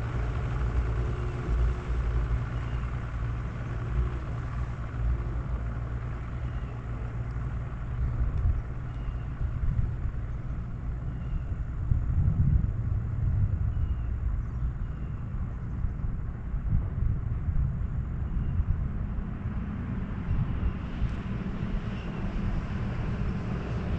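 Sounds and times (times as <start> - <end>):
wind buffeting microphone: 7.1 - 23.9.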